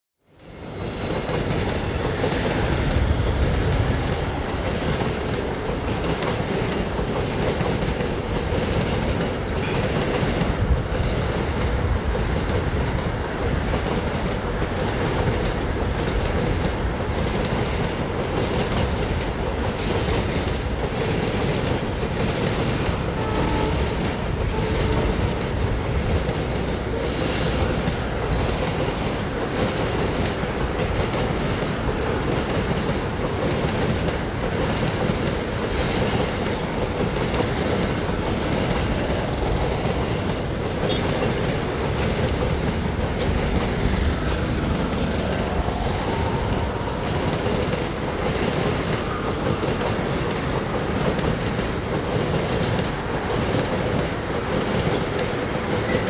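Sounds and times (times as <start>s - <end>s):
train wheels on rails: 0.3s - 56.0s
faint high wheel squeal: 0.4s - 1.6s, 18.4s - 27.8s.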